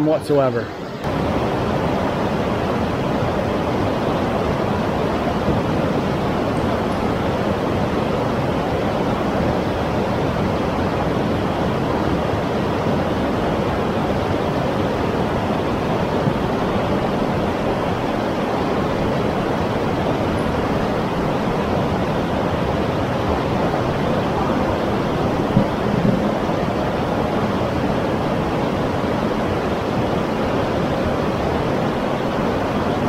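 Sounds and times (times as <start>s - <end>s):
waterfall and rapids rushing: 0.0s - 33.0s.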